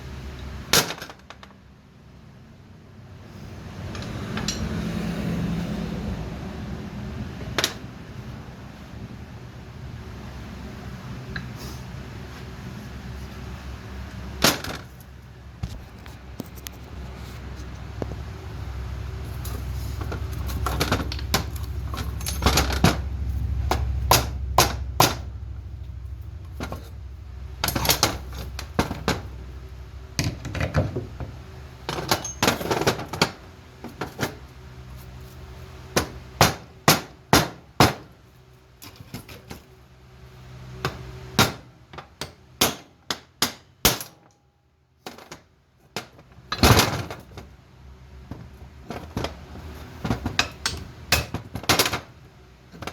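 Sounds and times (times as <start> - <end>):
metal tools knocking and clanking: 3.9 - 4.8, 19.4 - 23.1, 27.6 - 29.3, 30.2 - 34.4, 50.0 - 52.1
low hum: 15.2 - 30.5.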